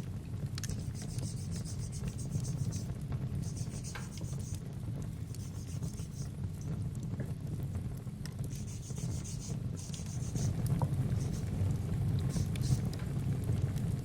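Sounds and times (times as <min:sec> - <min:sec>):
fireplace rumble and crackles: 0:00.0 - 0:14.0
nail file rasping on nails: 0:00.7 - 0:04.6, 0:05.3 - 0:06.3, 0:08.5 - 0:10.6, 0:11.2 - 0:11.5, 0:12.3 - 0:12.8.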